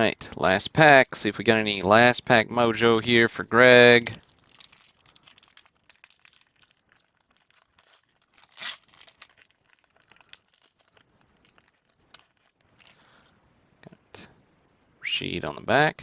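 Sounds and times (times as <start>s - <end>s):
card pack wrapper crinkling and tearing: 2.8s - 13.1s.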